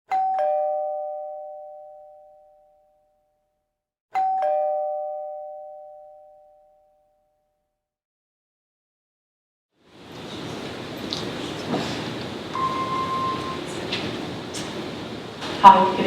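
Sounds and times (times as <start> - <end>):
two-tone ding-dong chime: 0.1 - 3.2, 4.2 - 7.4, 12.6 - 13.7.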